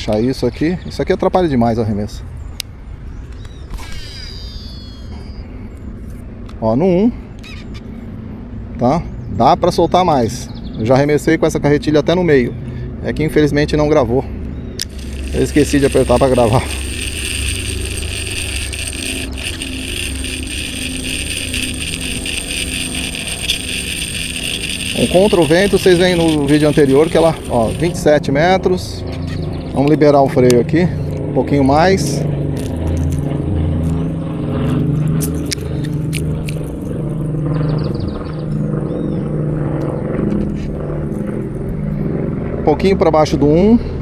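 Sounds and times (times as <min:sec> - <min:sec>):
sharp clicks: 0:14.8 - 0:28.0
fishing reel whirring and ticking: 0:14.8 - 0:28.2, 0:32.0 - 0:37.0.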